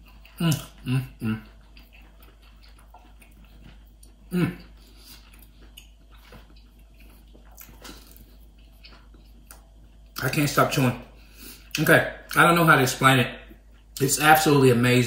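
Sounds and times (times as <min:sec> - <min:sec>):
man chewing: 0:00.0 - 0:10.2.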